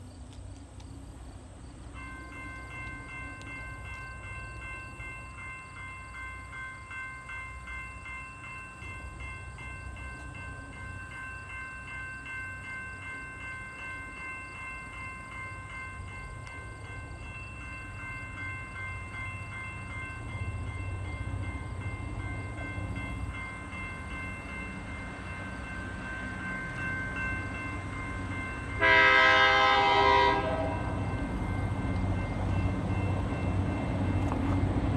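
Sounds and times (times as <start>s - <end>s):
diesel locomotives rumbling: 0.0s - 34.9s
railroad crossing bell ringing: 1.2s - 34.9s
locomotive air horn: 28.8s - 31.1s.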